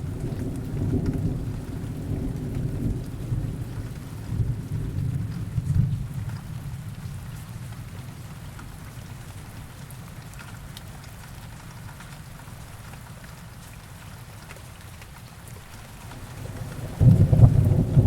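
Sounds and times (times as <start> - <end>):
distant thunder rumble: 0.0 - 6.4, 16.1 - 18.0
heavy rain: 0.0 - 18.0.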